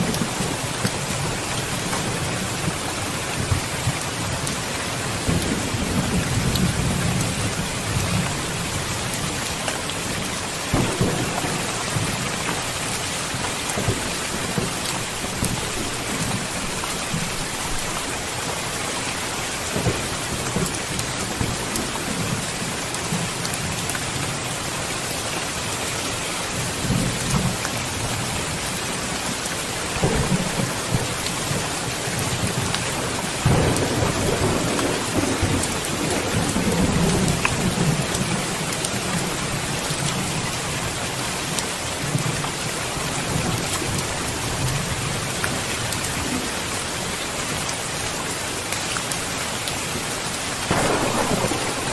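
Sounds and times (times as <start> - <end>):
steady rain falling: 0.0 - 51.9
low rolls of thunder: 5.2 - 9.0, 10.7 - 18.0, 30.0 - 39.4, 50.7 - 51.9.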